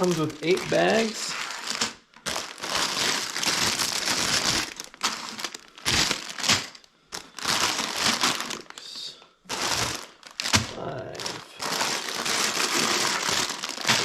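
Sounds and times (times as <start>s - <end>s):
plastic bags crinkling: 0.0s - 14.0s.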